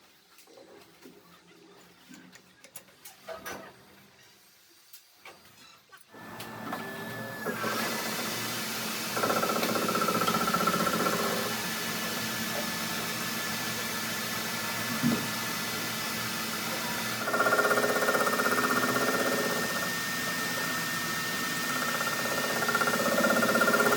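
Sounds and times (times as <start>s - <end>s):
machine running: 7.4s - 23.9s.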